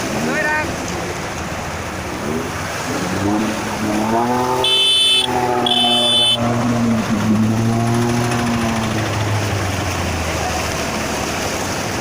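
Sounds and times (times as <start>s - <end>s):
high-pitched horn blasts: 4.6s - 6.5s.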